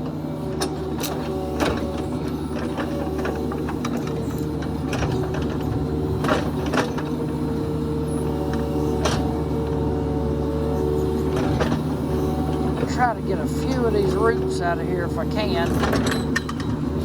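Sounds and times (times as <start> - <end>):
excavator bucket clanking: 0.0 - 14.6, 15.4 - 17.0
diesel engine running: 0.0 - 17.0.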